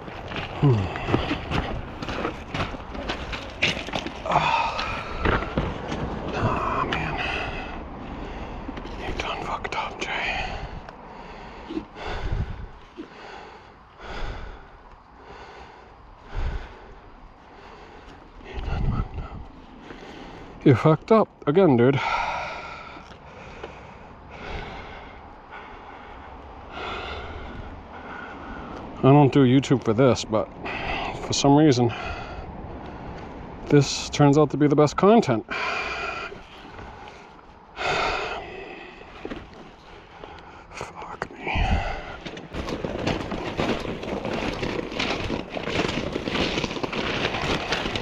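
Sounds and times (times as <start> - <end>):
man breathing hard: 0.0 - 20.6, 21.9 - 29.0, 30.6 - 33.6, 35.4 - 48.0
wind on microphone: 12.1 - 12.8, 18.5 - 19.6.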